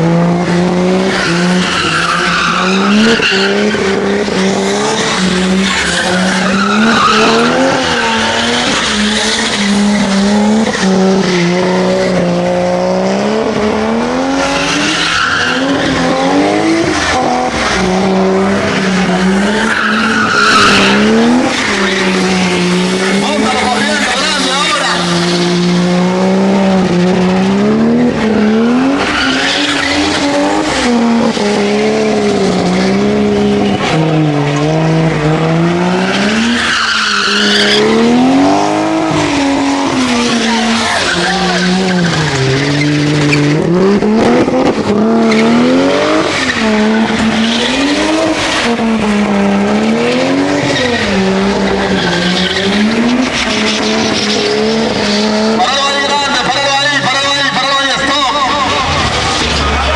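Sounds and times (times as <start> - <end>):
car engine at high revs: 0.0 - 59.9
tyres squealing: 1.1 - 11.7, 14.4 - 16.1, 16.8 - 25.5, 28.2 - 33.0, 35.9 - 44.2, 50.0 - 59.9.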